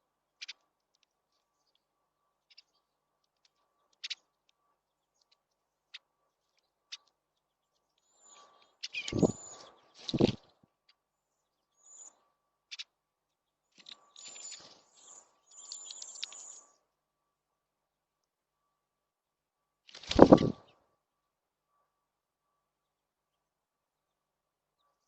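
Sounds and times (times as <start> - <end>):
small birds chirping: 0.4 - 16.8.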